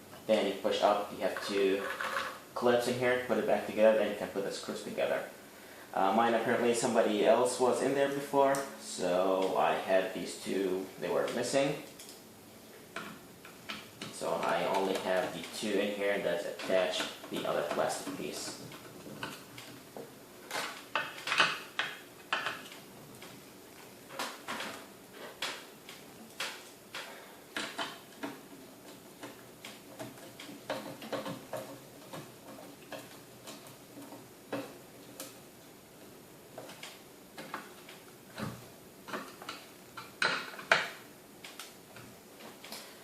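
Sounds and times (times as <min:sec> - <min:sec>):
small parts clicking and clattering: 0:01.4 - 0:02.4, 0:11.2 - 0:12.2, 0:13.0 - 0:43.0.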